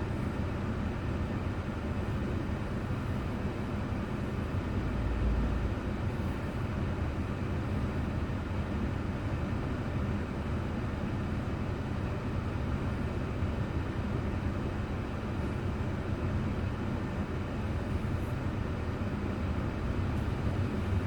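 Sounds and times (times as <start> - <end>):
car tyres and engine rumble: 0.3 - 21.0.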